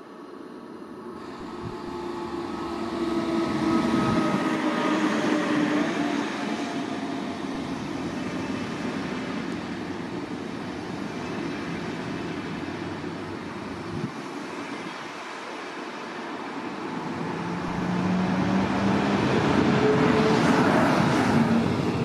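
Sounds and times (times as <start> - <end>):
electric train drive whine: 0.9 - 14.1
train wheels rolling on rails: 1.2 - 22.0.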